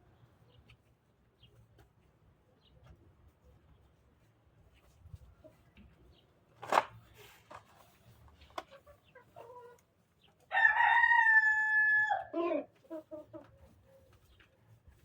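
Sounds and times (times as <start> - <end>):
rooster crowing: 10.5 - 12.4.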